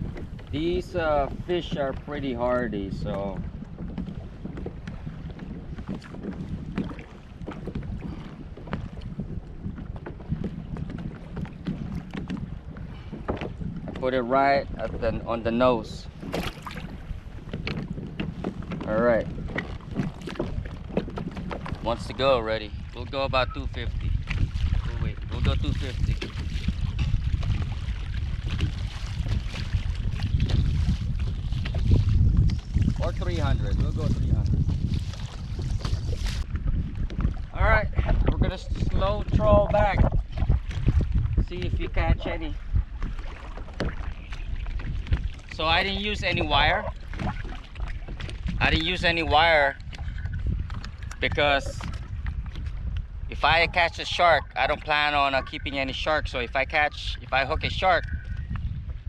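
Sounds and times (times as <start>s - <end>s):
water lapping against kayak hull: 0.0s - 59.0s
wind rumbling on microphone: 0.0s - 59.0s
faint ticks and splashes: 42.3s - 53.1s.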